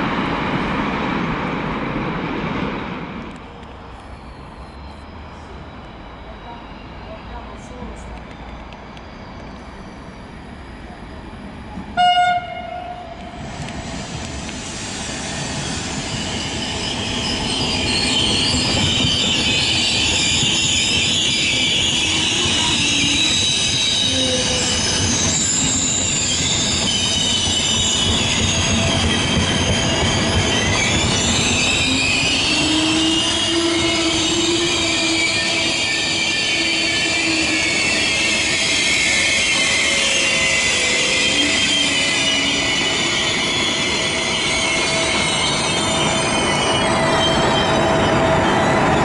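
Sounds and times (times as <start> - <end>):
train coaches rolling on rails: 3.1 - 49.0
train horn blast: 12.0 - 13.4
wheels squealing: 13.5 - 49.0.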